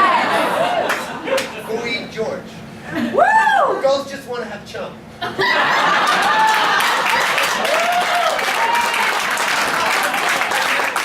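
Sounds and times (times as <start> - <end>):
audience cheering and whooping: 0.0 - 1.2, 3.1 - 3.8, 5.4 - 11.0
audience applauding: 6.0 - 11.0.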